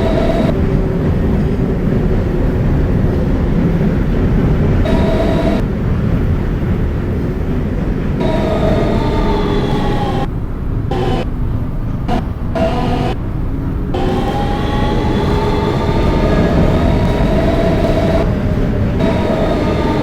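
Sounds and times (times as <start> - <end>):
electric motor whine: 0.0 - 0.6, 4.8 - 5.7, 8.2 - 10.3, 10.9 - 11.3, 12.1 - 13.2, 13.9 - 20.0
train wheels rumbling on rail: 0.0 - 20.0.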